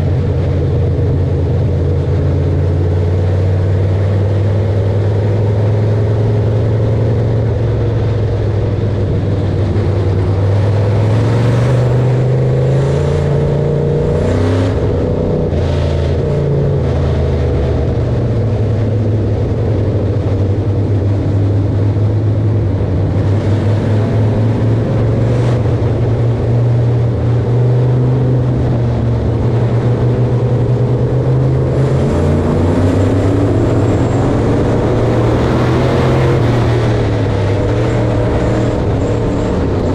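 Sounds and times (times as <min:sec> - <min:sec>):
harvester engine running: 0:00.0 - 0:39.9.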